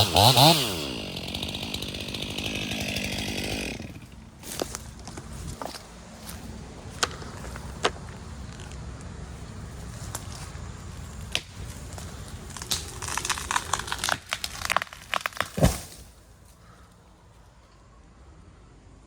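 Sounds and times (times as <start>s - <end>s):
tree wood cracking and snapping: 0.0s - 9.1s, 9.8s - 16.2s
heavy thud of falling tree: 15.4s - 16.1s.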